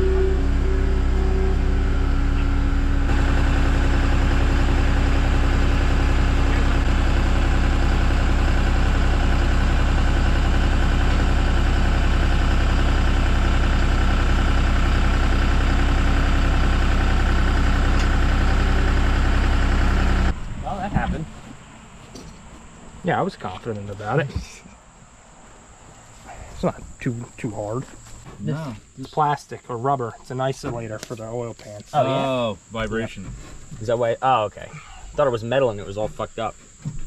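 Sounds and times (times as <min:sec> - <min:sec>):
skid steer engine running: 0:00.0 - 0:24.5.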